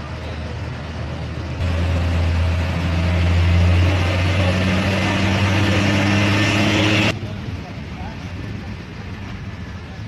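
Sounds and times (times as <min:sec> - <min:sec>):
vehicle engine humming: 0:00.0 - 0:07.4.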